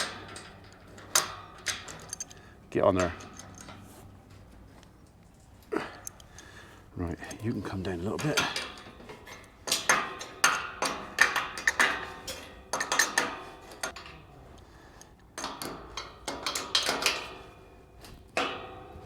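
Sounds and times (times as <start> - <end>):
steel gate clanking: 0.0 - 4.2, 7.4 - 14.4, 15.3 - 17.8.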